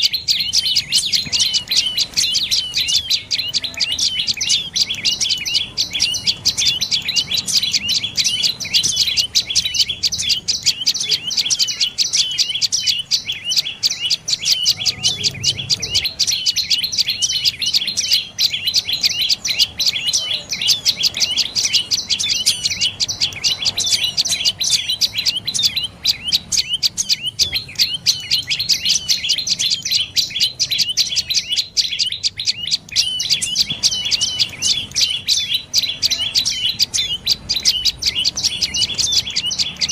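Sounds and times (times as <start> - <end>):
bird calling sharp high notes: 0.0 - 39.9.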